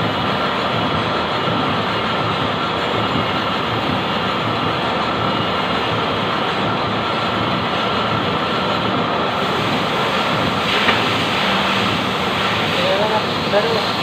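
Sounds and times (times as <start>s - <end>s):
mechanical running noise: 0.0s - 14.0s.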